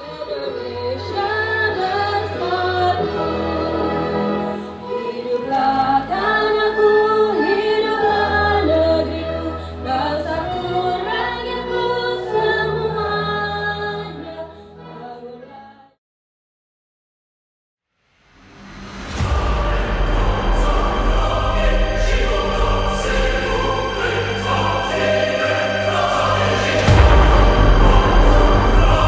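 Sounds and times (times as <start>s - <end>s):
choir-like singing: 0.0s - 16.0s, 18.4s - 29.0s
steady bass: 19.1s - 29.0s.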